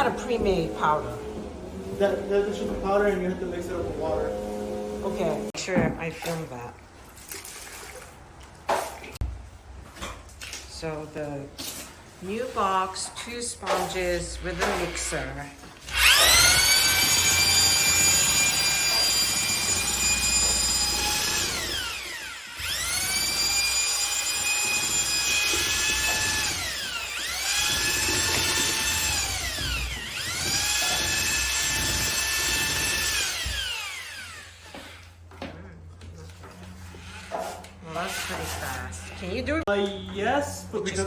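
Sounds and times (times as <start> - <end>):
electric mixer whining: 0.0 - 5.6, 15.9 - 34.7.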